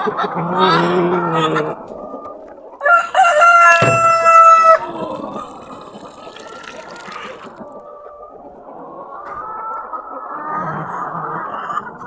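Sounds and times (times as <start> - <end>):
chickens clucking: 0.0 - 4.8, 7.5 - 12.0
rooster crowing: 2.8 - 4.8.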